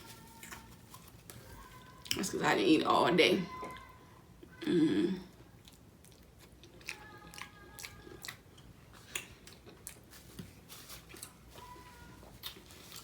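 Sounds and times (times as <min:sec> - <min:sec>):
wet chewing and mouth smacks: 0:05.6 - 0:10.1.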